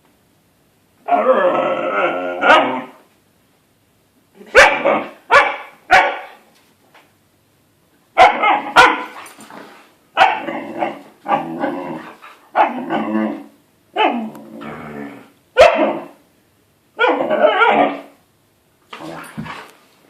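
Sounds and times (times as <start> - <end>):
dogs barking: 4.6 - 6.4, 8.2 - 9.1, 10.2 - 10.5, 15.6 - 16.1
dogs growling: 10.4 - 15.3.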